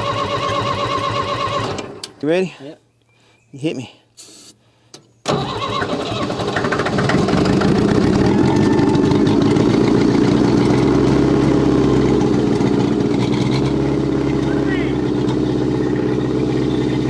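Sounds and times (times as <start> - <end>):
old engine starting and running: 0.0 - 2.1, 5.3 - 17.0.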